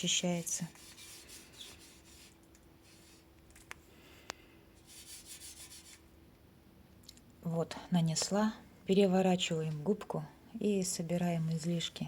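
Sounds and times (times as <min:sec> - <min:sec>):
sponge scratching on glass: 0:00.0 - 0:03.2, 0:04.8 - 0:06.0.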